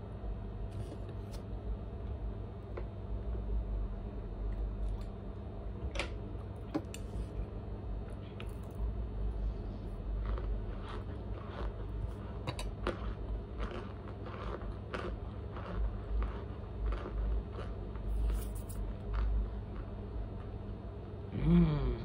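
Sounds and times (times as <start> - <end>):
person chewing crunchy food: 8.1 - 20.5.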